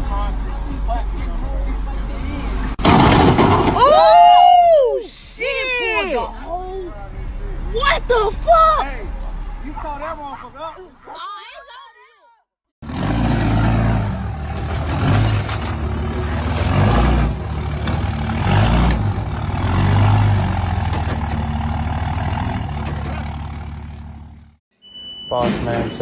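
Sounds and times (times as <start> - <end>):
heavy truck engine under load: 12.8 - 24.6.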